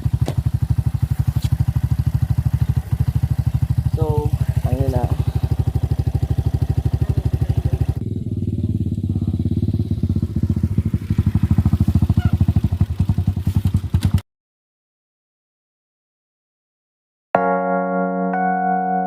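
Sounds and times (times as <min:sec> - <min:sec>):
dirt bike engine running: 0:00.0 - 0:14.2.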